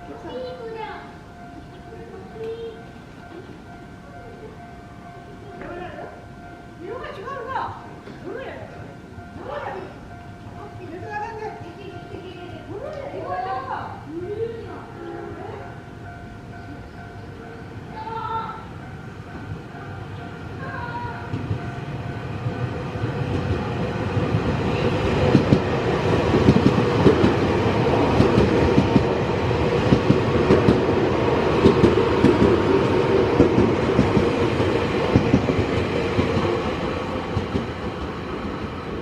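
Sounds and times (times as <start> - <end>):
train rumble: 0.0 - 39.0
train wheels clattering over rail joints: 25.2 - 38.8.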